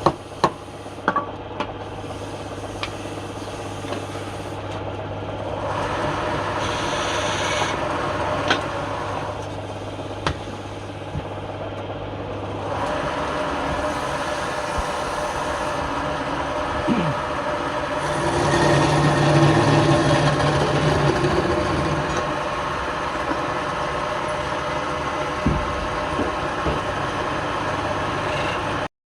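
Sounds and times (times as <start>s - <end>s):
wood lathe humming: 5.2s - 28.9s
tool rubbing spinning wood: 5.6s - 11.1s, 12.5s - 24.8s.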